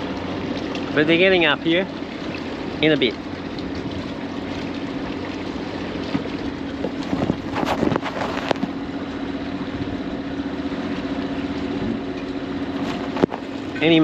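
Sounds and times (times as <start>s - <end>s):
boat engine running at low revs: 0.0s - 14.0s.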